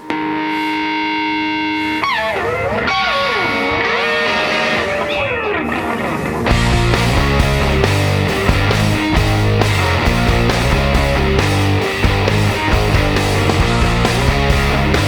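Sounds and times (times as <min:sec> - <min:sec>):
electric guitar: 0:00.0 - 0:15.0
drums: 0:02.0 - 0:15.0
heavy bass: 0:06.5 - 0:15.0.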